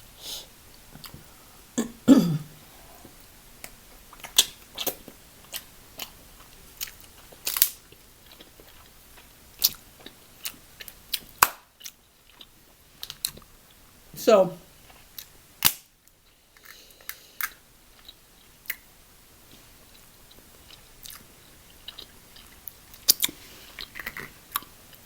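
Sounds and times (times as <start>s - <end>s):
chewing close up: 4.1s - 13.5s, 19.9s - 25.0s
crab shells cracking: 6.8s - 7.8s.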